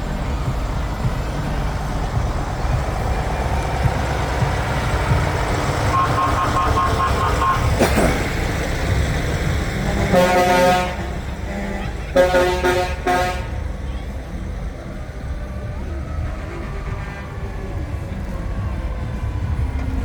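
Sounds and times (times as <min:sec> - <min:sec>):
heavy truck engines rumbling: 0:00.0 - 0:20.0
pulsed beeping tone: 0:00.1 - 0:07.8
loud horn blast: 0:02.9 - 0:14.2, 0:16.1 - 0:18.4.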